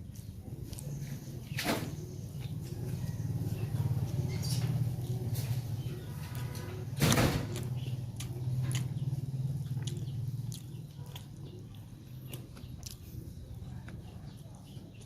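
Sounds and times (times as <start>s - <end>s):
person chewing and smacking: 0.0s - 1.6s, 5.0s - 15.0s.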